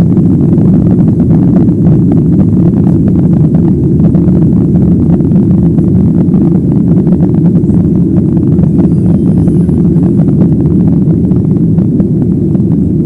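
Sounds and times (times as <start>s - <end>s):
airliner cabin engine rumble: 0.0s - 13.0s.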